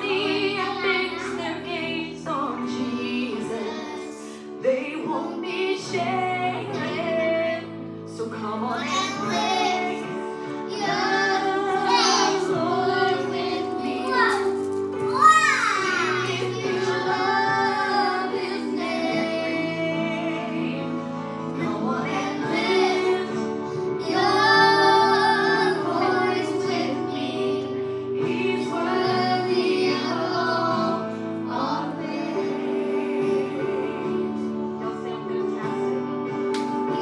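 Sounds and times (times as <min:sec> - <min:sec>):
instrumental backing: 0:00.0 - 0:37.0
woman singing worship song: 0:00.0 - 0:37.0.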